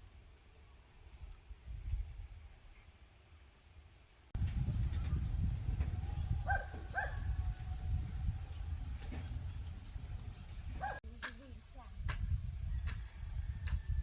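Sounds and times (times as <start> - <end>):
steady low rumble: 4.4 - 14.0.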